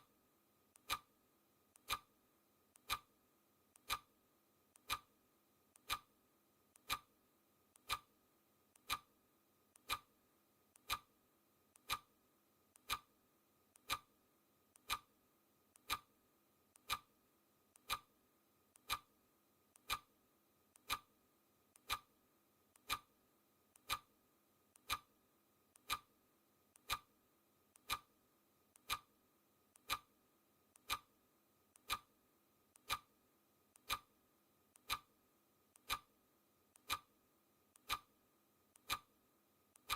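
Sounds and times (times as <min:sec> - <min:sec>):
clock ticking: 0:00.8 - 0:01.1, 0:01.8 - 0:02.1, 0:02.8 - 0:03.1, 0:03.8 - 0:04.1, 0:04.8 - 0:05.1, 0:05.8 - 0:06.1, 0:06.8 - 0:07.1, 0:07.8 - 0:08.1, 0:08.8 - 0:09.1, 0:09.8 - 0:10.1, 0:10.8 - 0:11.1, 0:11.8 - 0:12.2, 0:12.8 - 0:13.1, 0:13.8 - 0:14.2, 0:14.8 - 0:15.2, 0:15.8 - 0:16.1, 0:16.8 - 0:17.2, 0:17.8 - 0:18.2, 0:18.8 - 0:19.1, 0:19.8 - 0:20.2, 0:20.8 - 0:21.2, 0:21.8 - 0:22.2, 0:22.8 - 0:23.2, 0:23.8 - 0:24.2, 0:24.8 - 0:25.2, 0:25.8 - 0:26.2, 0:26.8 - 0:27.2, 0:27.8 - 0:28.2, 0:28.8 - 0:29.2, 0:29.8 - 0:30.2, 0:30.8 - 0:31.2, 0:31.8 - 0:32.2, 0:32.8 - 0:33.2, 0:33.8 - 0:34.2, 0:34.8 - 0:35.2, 0:35.8 - 0:36.2, 0:36.8 - 0:37.2, 0:37.8 - 0:38.2, 0:38.8 - 0:39.2.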